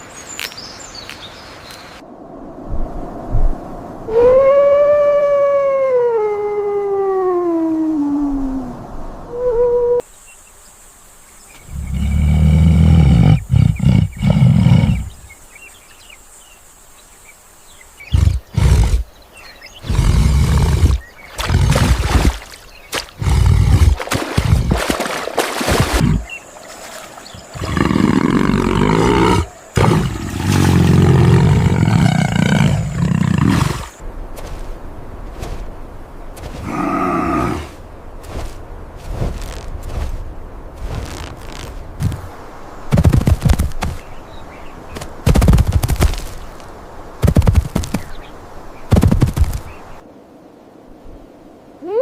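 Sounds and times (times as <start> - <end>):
large animal roaring: 27.6 - 34.0, 36.6 - 37.8.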